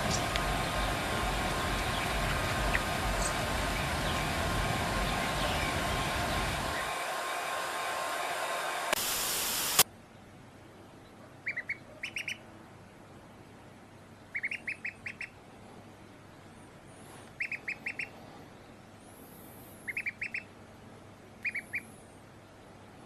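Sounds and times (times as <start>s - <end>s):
loud rushing noise: 0.0s - 9.8s
duck calling: 11.4s - 12.4s, 17.4s - 18.1s, 19.9s - 20.5s.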